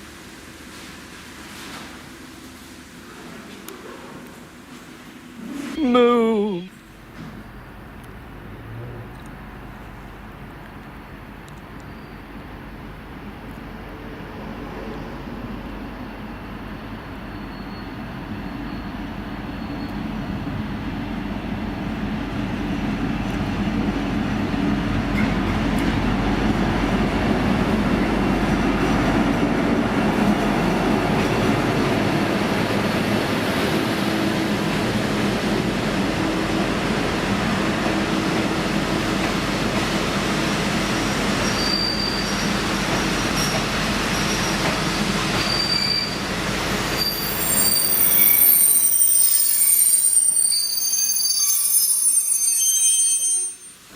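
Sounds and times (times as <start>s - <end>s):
diesel locomotive engine hum: 6.8s - 41.5s
train rumble: 6.8s - 50.4s
high-pitched wheel squeals: 41.4s - 42.6s, 45.4s - 46.2s, 47.0s - 53.9s.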